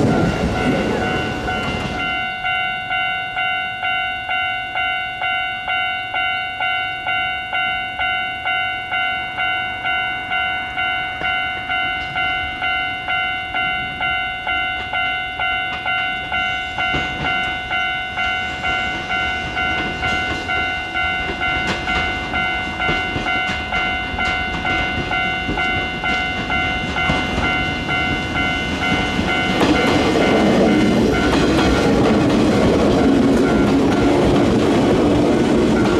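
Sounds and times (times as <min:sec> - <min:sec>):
level crossing alarm bell ringing: 0:00.0 - 0:35.9
train wheels clattering over rail joints: 0:18.6 - 0:35.9.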